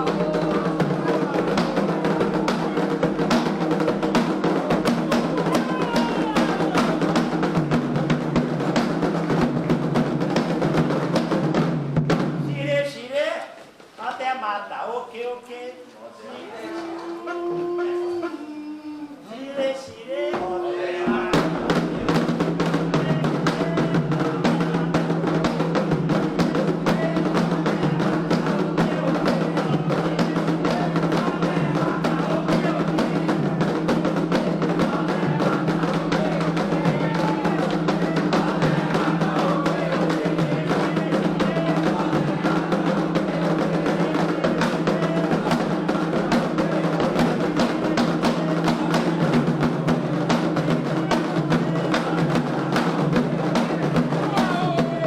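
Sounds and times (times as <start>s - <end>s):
hand drums playing fast rhythm: 0.0s - 12.7s, 20.3s - 55.0s.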